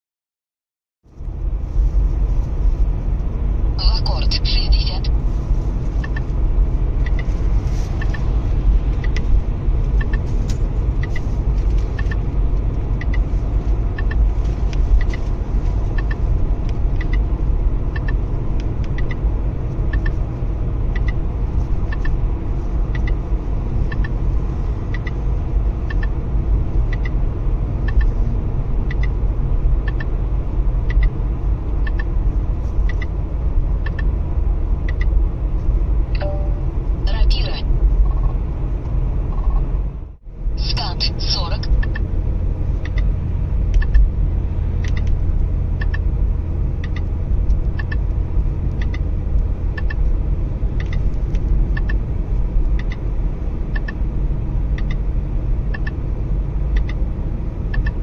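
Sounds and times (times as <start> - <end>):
car cabin rumble: 1.1 - 58.0
short high beeps: 36.2 - 36.7.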